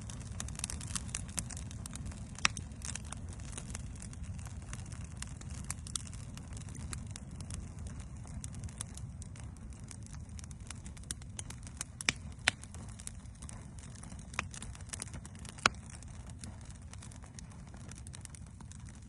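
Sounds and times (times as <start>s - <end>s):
campfire crackling and popping: 0.0s - 19.0s
low steady rumble: 0.0s - 19.0s.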